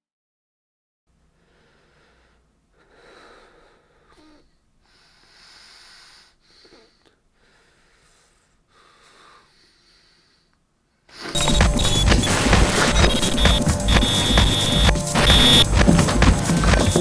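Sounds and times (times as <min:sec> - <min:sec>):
man breathing: 0:01.3 - 0:11.4.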